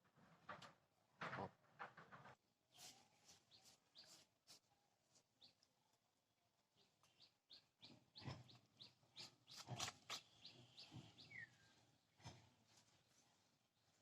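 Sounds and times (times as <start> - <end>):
bird chirping: 2.7 - 6.0, 6.6 - 14.0.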